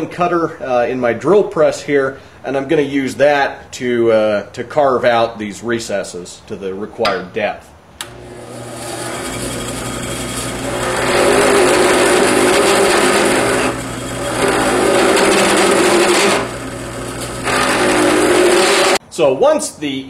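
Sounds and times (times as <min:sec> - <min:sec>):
cutter grinding into wood: 0:08.0 - 0:19.0
drill press motor hum: 0:08.0 - 0:19.0.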